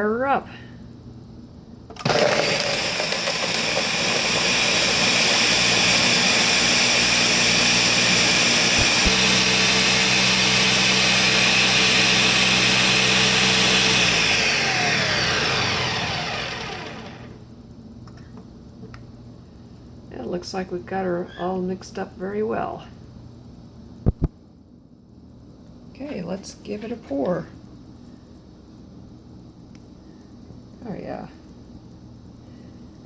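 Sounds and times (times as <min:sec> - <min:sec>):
blender motor winding down: 0:02.0 - 0:17.4
blender running: 0:02.0 - 0:17.4.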